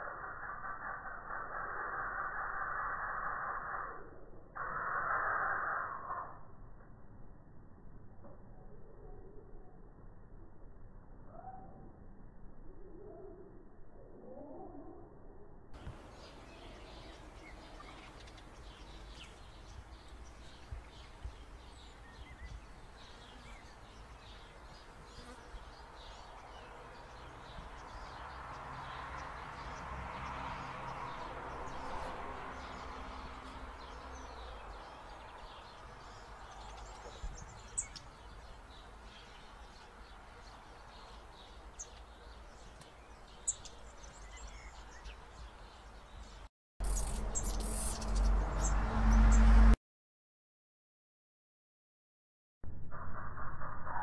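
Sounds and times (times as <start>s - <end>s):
soft bird chirps: 15.8s - 49.5s.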